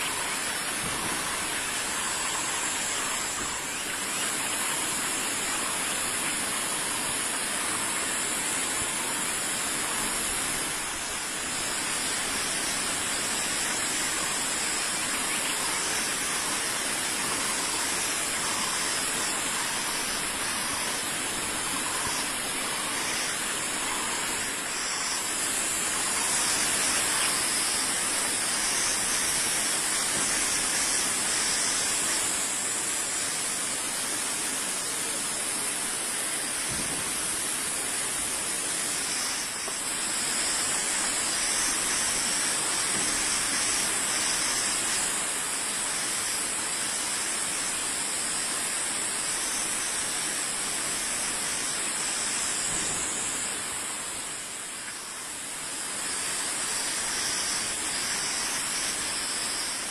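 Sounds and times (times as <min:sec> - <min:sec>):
steady hissing noise: 0:00.0 - 0:59.9.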